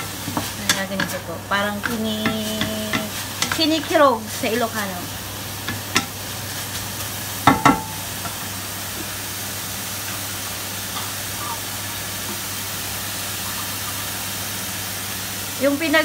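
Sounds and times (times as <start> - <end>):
meat sizzling in a wok: 0.0 - 16.0
spatula knocking against pan: 1.8 - 3.7, 5.6 - 6.1, 7.4 - 8.4.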